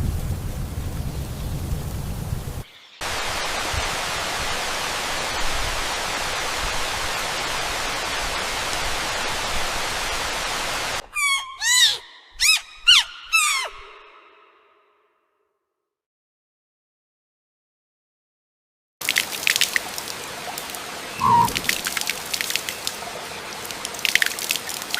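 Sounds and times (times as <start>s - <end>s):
heavy rain hissing: 0.0s - 11.0s, 19.3s - 24.9s
kitten mewing: 21.2s - 21.7s.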